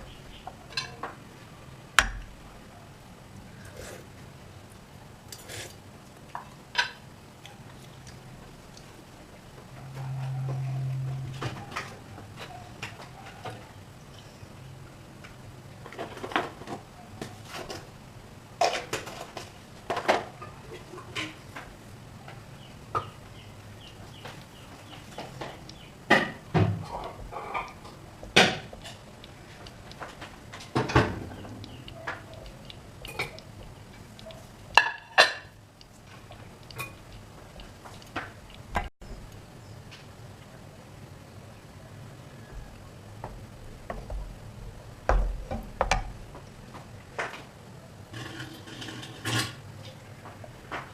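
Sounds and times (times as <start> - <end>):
low steady hum: 0.0 - 48.6
kitchen utensils clattering: 48.1 - 49.6.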